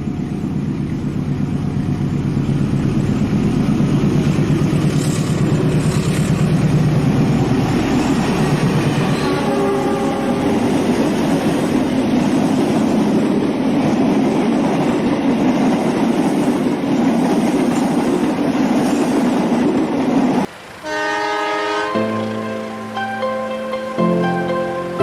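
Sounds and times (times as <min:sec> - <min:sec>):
train rumbling across bridge: 0:00.0 - 0:25.0
train horn: 0:09.0 - 0:11.3, 0:20.8 - 0:25.0
music: 0:21.8 - 0:25.0.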